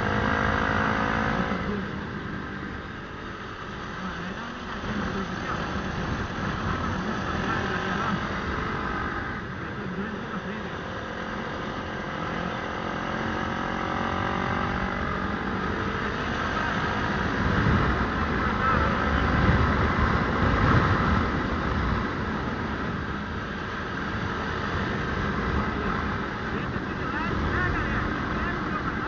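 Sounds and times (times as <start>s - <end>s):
motorcycle engine running: 0.0s - 29.0s
wind rumble on microphone: 3.8s - 9.6s, 14.5s - 29.0s.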